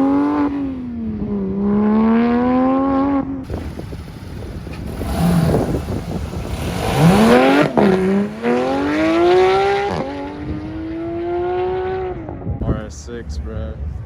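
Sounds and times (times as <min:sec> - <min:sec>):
car engine accelerating: 0:00.0 - 0:12.4.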